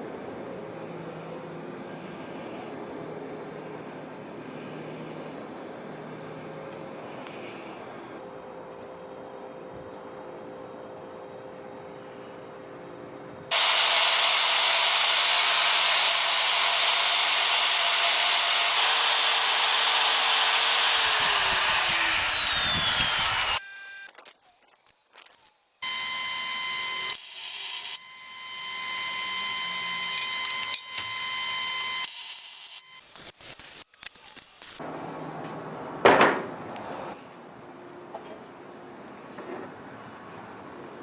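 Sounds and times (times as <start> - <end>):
machine hum: 10.1 - 24.1
power tool high whine: 13.5 - 24.1, 25.8 - 34.8.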